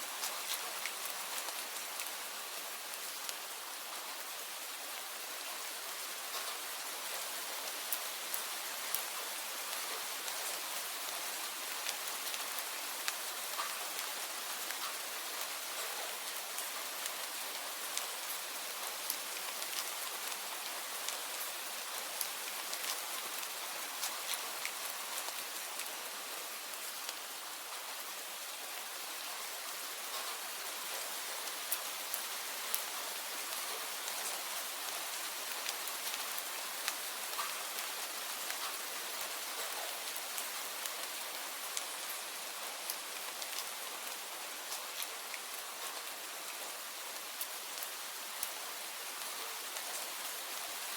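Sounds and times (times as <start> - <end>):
steady rain: 0.0 - 50.9.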